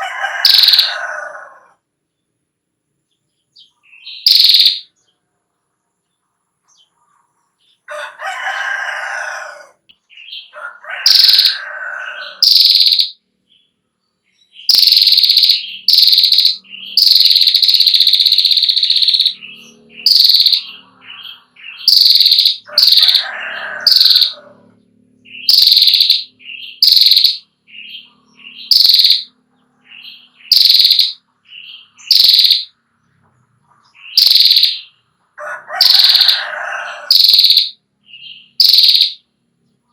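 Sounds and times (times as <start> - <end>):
bird lower harsher calls: 0.0 - 1.7, 14.7 - 29.3, 34.0 - 39.2
bird long trill: 0.0 - 1.8, 3.6 - 5.0, 7.9 - 13.2, 14.5 - 32.8, 33.8 - 39.3.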